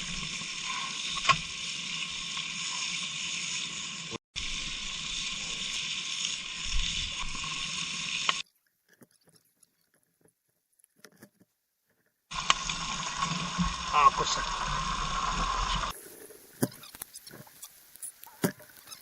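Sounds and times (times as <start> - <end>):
steady hissing noise: 12.3 - 19.0.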